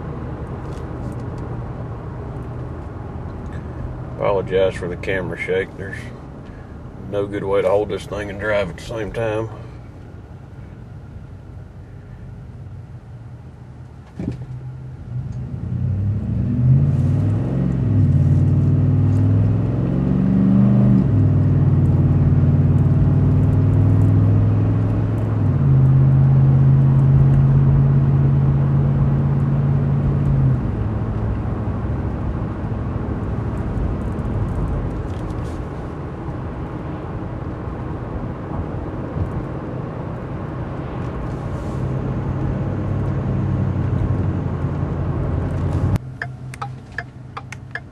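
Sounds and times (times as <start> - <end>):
truck engine accelerating: 14.4 - 47.9.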